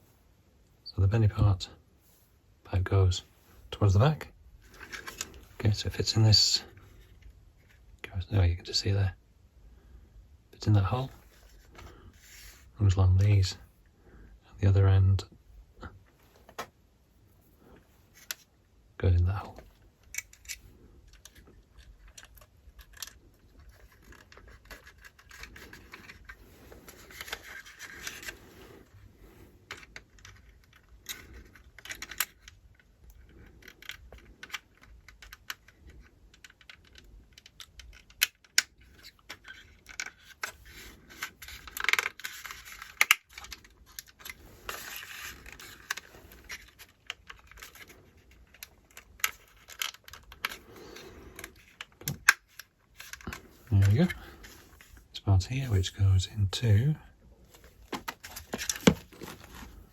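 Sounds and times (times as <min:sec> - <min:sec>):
plastic parts clicking: 0:20.0 - 0:28.4, 0:29.6 - 0:54.9, 0:57.5 - 0:59.9
rustling: 0:38.8 - 0:55.2, 0:57.4 - 0:59.9.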